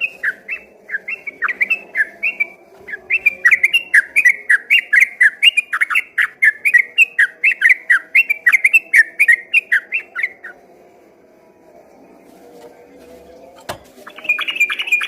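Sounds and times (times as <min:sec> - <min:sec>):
bird singing rapid chirps: 0:00.0 - 0:10.6, 0:14.0 - 0:15.0.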